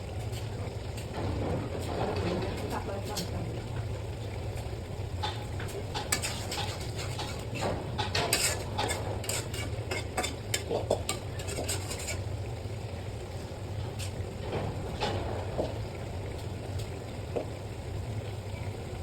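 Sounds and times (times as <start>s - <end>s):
metal spoon scraping a cooking pot: 6.0s - 12.4s.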